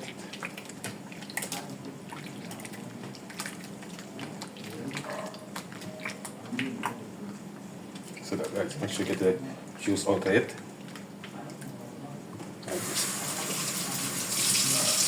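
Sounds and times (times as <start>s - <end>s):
wet splashing and dripping: 0.0s - 6.4s.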